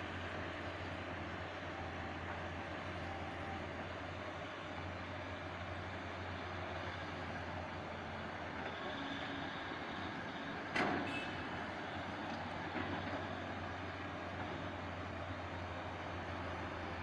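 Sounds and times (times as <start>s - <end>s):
diesel engines running: 0.0s - 17.0s.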